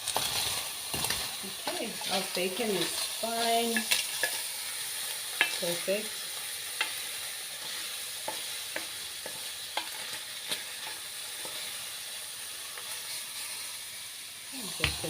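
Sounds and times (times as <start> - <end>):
bacon sizzling and popping: 0.0 - 15.0.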